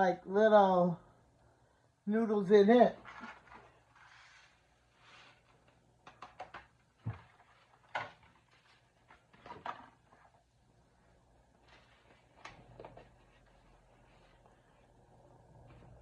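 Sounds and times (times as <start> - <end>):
rustling: 2.9 - 5.8, 6.8 - 16.0.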